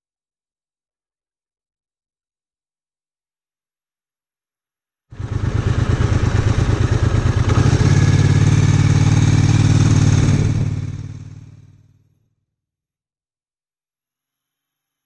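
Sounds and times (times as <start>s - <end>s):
motorcycle engine running: 5.2s - 12.0s.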